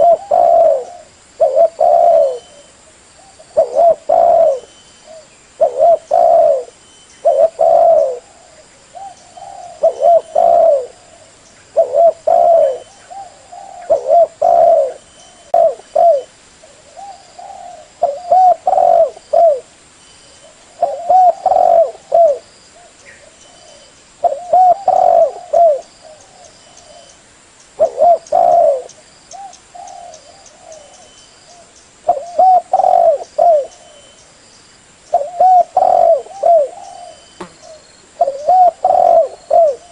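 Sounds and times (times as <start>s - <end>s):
dove cooing: 0.0s - 19.7s, 20.4s - 27.2s, 27.8s - 34.2s, 35.1s - 39.9s.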